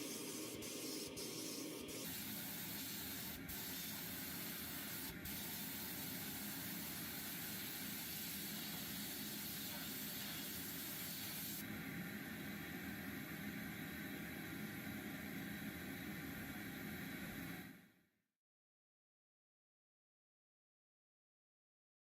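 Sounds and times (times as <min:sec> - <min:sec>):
compressed-air spray hissing: 0:00.0 - 0:11.6.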